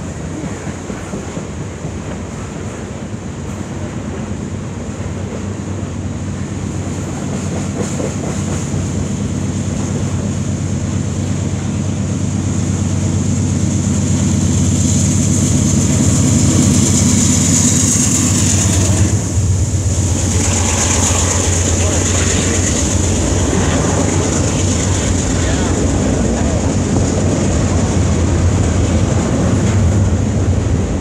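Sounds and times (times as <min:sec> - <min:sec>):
diesel locomotive engine: 0:00.0 - 0:31.0
train wheels on rails: 0:00.0 - 0:31.0
steady low drone: 0:09.2 - 0:31.0.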